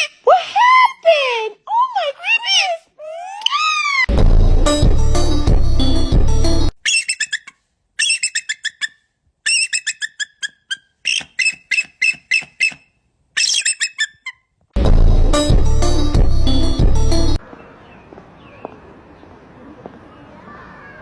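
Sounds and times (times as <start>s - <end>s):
loud music: 4.1s - 6.7s, 14.8s - 17.4s.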